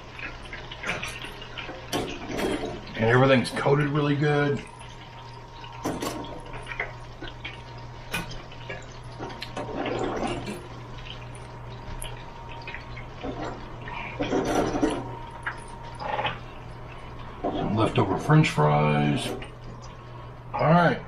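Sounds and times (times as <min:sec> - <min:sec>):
frying oil bubbling and crackling: 0:00.0 - 0:20.6
steady hum: 0:00.0 - 0:21.0.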